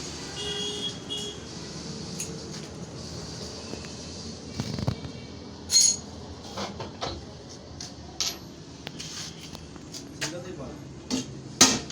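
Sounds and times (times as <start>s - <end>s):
steady background noise: 0.0s - 11.9s
metal knocks and clinks: 5.7s - 6.1s.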